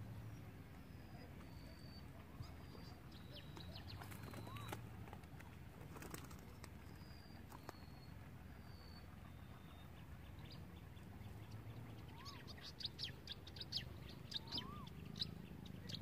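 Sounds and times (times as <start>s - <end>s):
rising and falling bird call: 12.0s - 16.0s.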